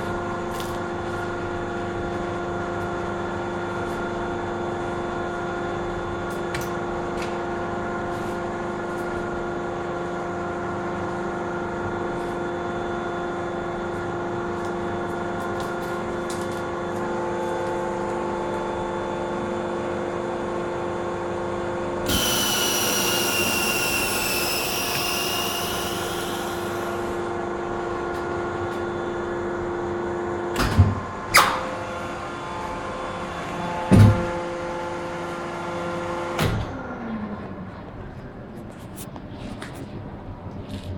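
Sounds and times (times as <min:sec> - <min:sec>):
press machine motor hum: 0:22.0 - 0:28.0
sharp machine clunks: 0:22.1 - 0:27.1, 0:31.3 - 0:31.8
loud hiss with whistle: 0:22.1 - 0:27.2.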